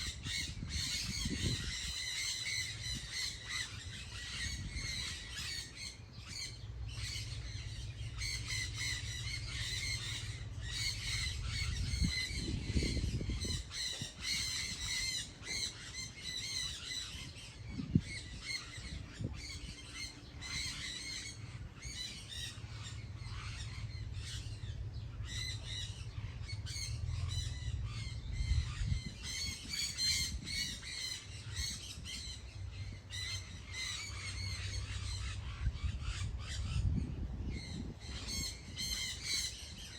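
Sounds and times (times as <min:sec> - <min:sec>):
flock of birds chattering: 0:00.0 - 0:39.9
low rumble: 0:21.2 - 0:31.5.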